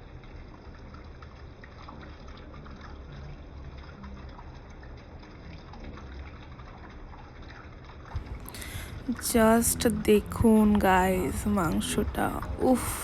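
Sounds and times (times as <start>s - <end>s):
curry bubbling in a pan: 0.0s - 12.9s
low rumble: 8.2s - 13.0s.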